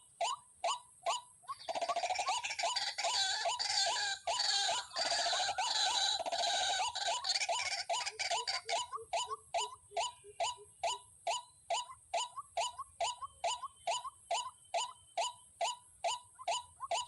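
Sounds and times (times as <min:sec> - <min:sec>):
waterhen calls: 0:01.5 - 0:11.0.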